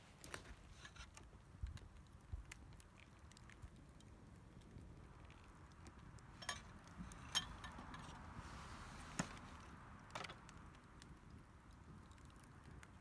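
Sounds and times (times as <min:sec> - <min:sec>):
faint hiss: 0:08.2 - 0:09.6.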